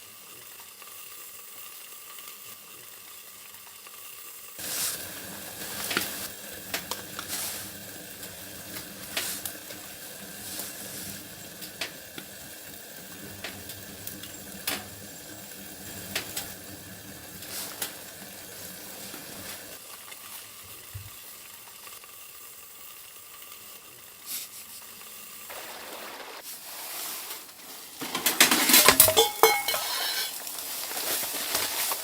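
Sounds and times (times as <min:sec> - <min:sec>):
food sizzling in frying pan: 0:00.0 - 0:32.0
clattering and scraping: 0:28.0 - 0:31.9.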